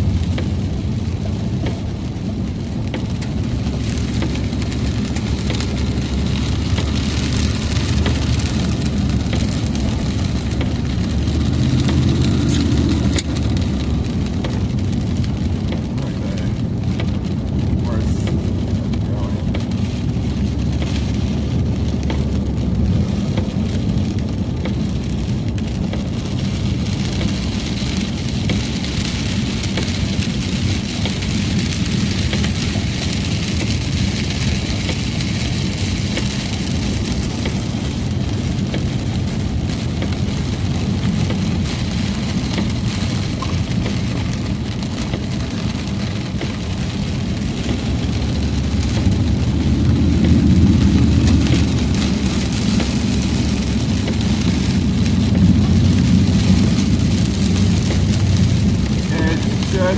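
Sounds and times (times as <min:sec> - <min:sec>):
rain hissing on car: 0:00.0 - 0:59.9
road and engine rumble: 0:00.0 - 0:59.9.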